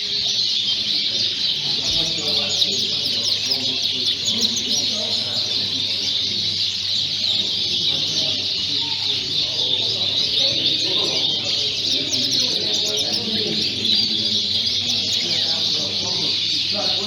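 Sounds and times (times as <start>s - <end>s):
canaries chirping and singing: 0.0s - 17.0s
low background murmur: 0.0s - 17.0s.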